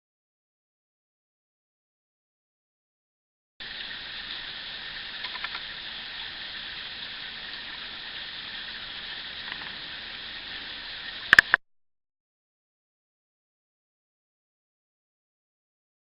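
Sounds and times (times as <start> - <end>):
stream and waterfall over rocks: 3.6 - 11.6
sharp clicks: 5.2 - 5.7, 11.3 - 11.6.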